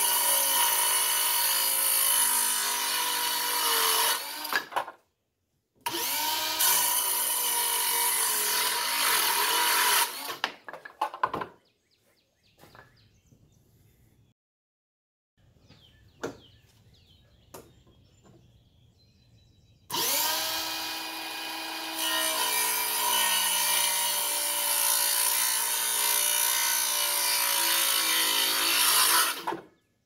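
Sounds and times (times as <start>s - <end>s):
circular saw cutting wood: 0.0s - 4.7s, 5.8s - 10.5s, 19.9s - 29.7s.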